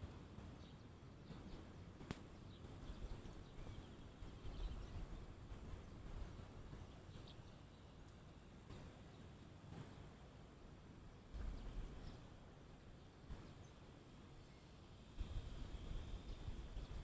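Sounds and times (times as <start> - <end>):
faint bird chirps: 2.3 - 6.0.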